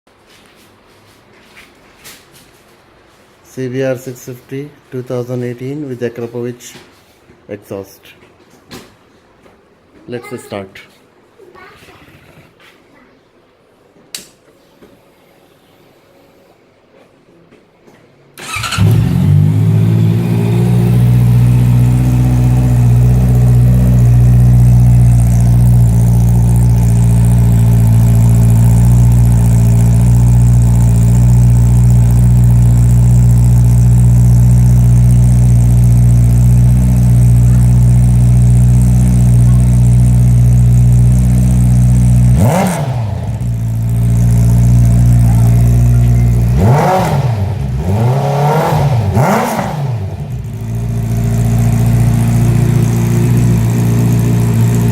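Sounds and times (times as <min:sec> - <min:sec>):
motorcycle engine idling: 0:18.4 - 0:54.9
motorcycle engine revving: 0:18.4 - 0:54.9.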